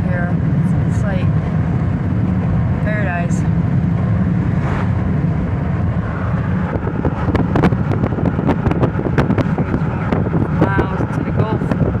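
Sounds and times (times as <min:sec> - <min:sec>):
vehicle rumble: 0:00.0 - 0:12.0
wind buffeting microphone: 0:00.0 - 0:12.0.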